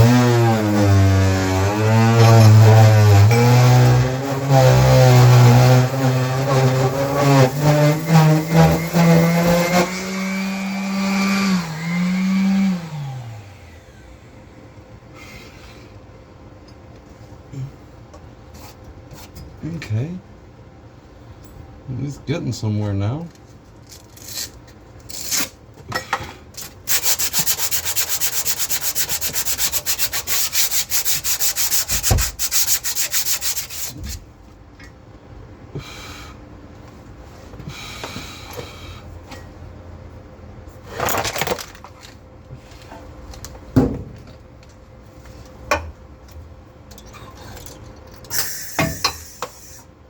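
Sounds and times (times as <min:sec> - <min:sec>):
electric arc welding sizzle: 0:26.9 - 0:34.0.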